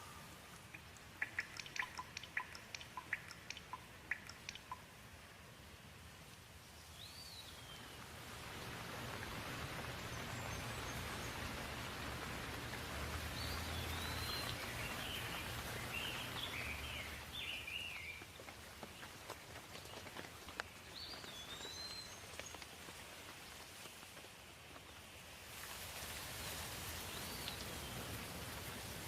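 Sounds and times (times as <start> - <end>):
birds chirping: 0.0 - 5.0, 9.1 - 23.2
rain falling: 0.0 - 29.0.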